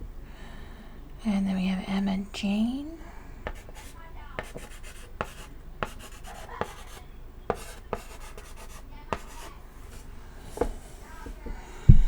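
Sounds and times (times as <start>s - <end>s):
chalk scratching on chalkboard: 3.4s - 11.5s
chalk tapping on chalkboard: 3.4s - 12.0s.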